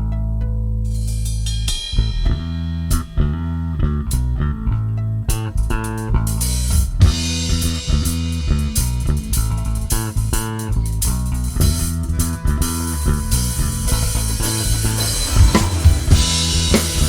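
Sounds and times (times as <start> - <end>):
bass guitar: 0.0 - 17.0
drum kit: 5.9 - 17.0
electric guitar: 11.4 - 17.0
cymbal wash: 12.6 - 17.0.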